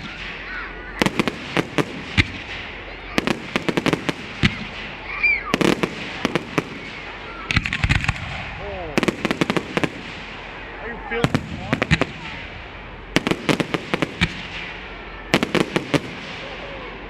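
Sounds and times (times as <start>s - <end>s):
fireworks bangs and crackling pops: 0.0s - 17.0s.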